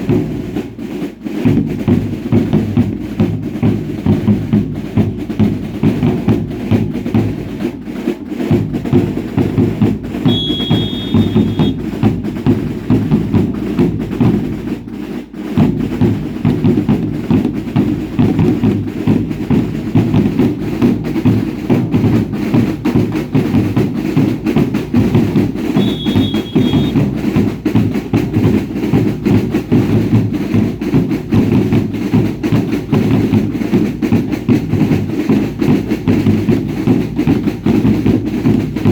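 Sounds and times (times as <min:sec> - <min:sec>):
drums beating fast: 0:00.0 - 0:38.9
high whistle-like tone: 0:10.3 - 0:11.8, 0:25.8 - 0:27.0.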